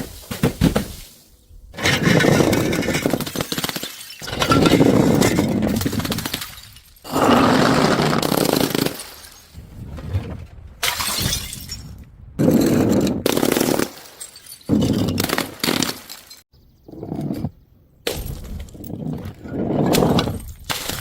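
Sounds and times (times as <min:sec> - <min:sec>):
glass bottles smashing: 0:01.8 - 0:07.2, 0:08.8 - 0:09.6, 0:10.8 - 0:11.9, 0:13.5 - 0:16.4.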